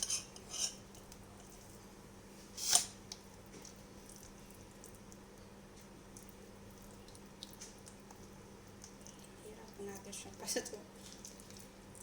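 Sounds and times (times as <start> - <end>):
wet squish: 3.1 - 10.4, 11.0 - 12.0.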